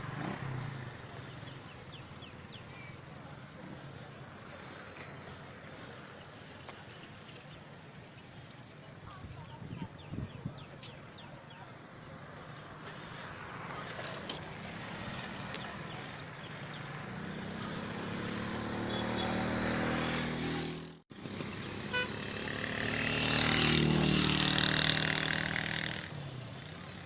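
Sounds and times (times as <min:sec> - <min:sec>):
vehicle engines passing by: 0:00.0 - 0:27.0.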